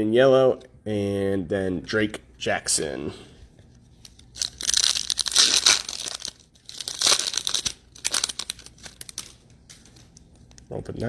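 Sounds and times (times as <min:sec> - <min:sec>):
foil wrapper tearing and crinkling: 0:04.0 - 0:10.6.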